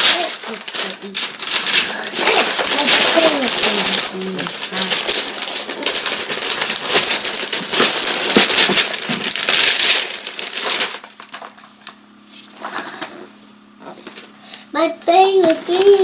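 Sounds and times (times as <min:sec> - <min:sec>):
paper tearing and crumpling: 0:00.0 - 0:11.8, 0:15.3 - 0:16.0.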